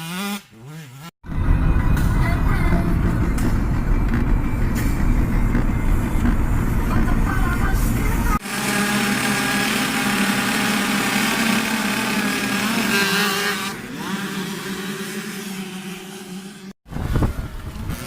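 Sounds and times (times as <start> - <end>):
low rumbling noise: 1.3 - 8.8
two-stroke engine running high: 4.1 - 16.7.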